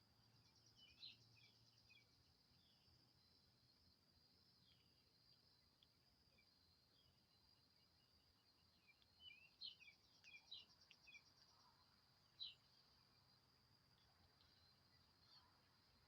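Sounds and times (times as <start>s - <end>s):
faint bird chirps: 0.3s - 3.6s, 4.5s - 16.0s.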